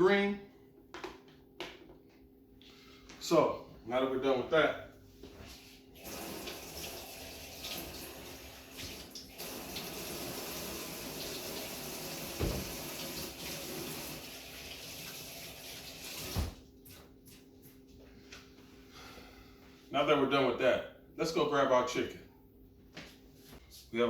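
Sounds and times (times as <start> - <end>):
tap running into sink: 11.2 - 14.2, 16.1 - 16.6.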